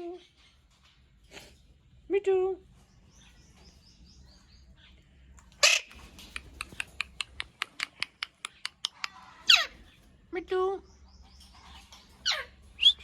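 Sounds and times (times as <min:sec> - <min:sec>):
parakeet squawk: 0:05.6 - 0:06.0, 0:08.9 - 0:09.9, 0:11.6 - 0:12.6
parakeet clicking chirps: 0:05.9 - 0:09.7.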